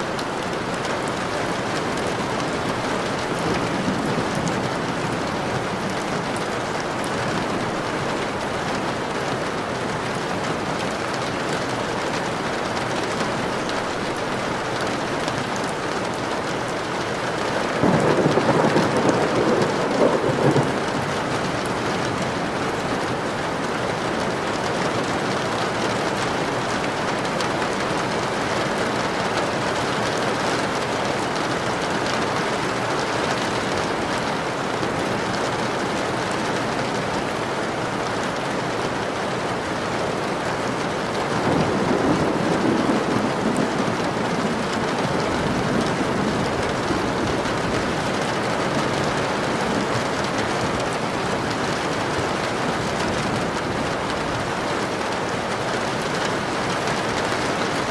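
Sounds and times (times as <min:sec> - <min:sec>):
steady rain: 0:00.0 - 0:57.9
thunder: 0:17.7 - 0:21.3, 0:41.4 - 0:48.0.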